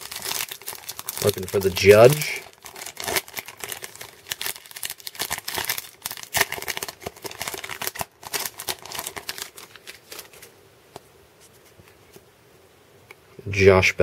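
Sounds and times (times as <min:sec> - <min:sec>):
wrapper crinkling and tearing: 0:00.0 - 0:10.5
cards being shuffled: 0:08.9 - 0:10.6.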